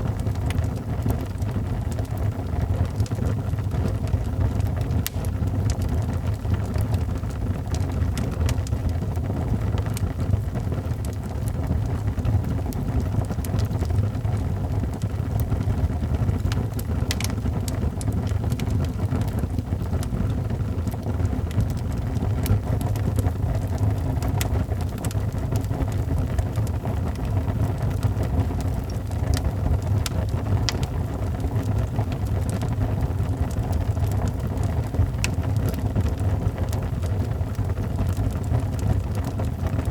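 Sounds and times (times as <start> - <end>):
fire crackling in fireplace: 0.0 - 39.9.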